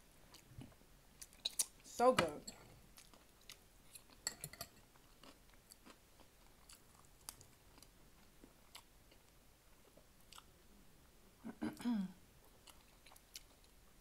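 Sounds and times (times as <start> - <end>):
person chewing: 0.3 - 1.8, 2.9 - 10.5, 12.4 - 13.9.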